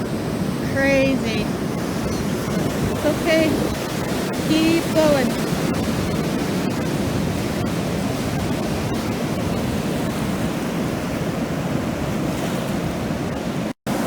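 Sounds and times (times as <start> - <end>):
ocean waves breaking: 0.0 - 14.0.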